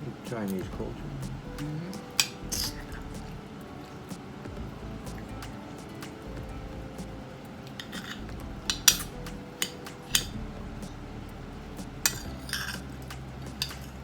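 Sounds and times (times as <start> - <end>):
cutlery clinking on a plate: 2.0 - 3.1, 7.7 - 10.4, 13.6 - 14.0.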